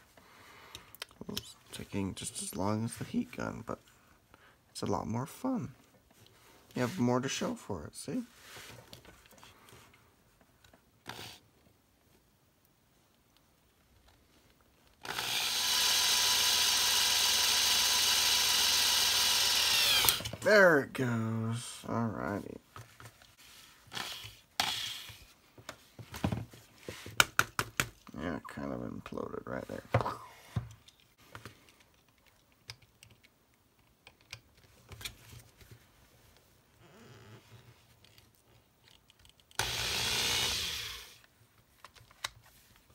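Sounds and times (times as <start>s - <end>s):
electric drill whining: 15.0s - 20.3s, 39.6s - 41.2s.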